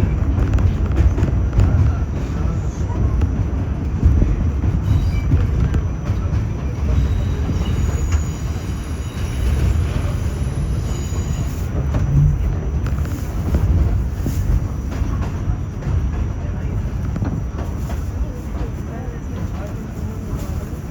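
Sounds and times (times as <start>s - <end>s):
rail joint clicks: 0.0s - 20.9s
train wheels rumbling on rail: 0.0s - 20.9s
faint high wheel squeal: 4.8s - 13.4s.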